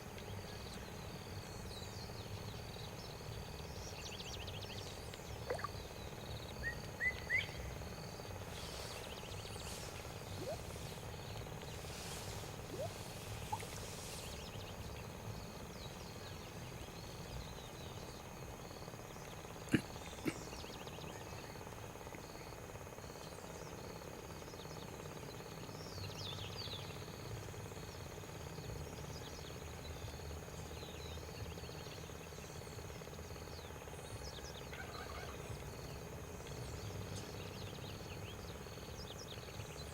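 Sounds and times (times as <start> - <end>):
low steady rumble: 0.0 - 26.7
small chirps: 5.1 - 5.8, 8.2 - 14.9.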